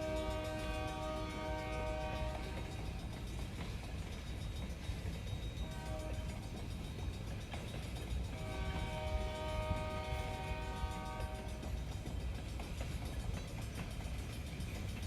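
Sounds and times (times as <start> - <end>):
locomotive horn blasts: 0.0 - 2.8, 5.6 - 6.3, 8.3 - 11.6.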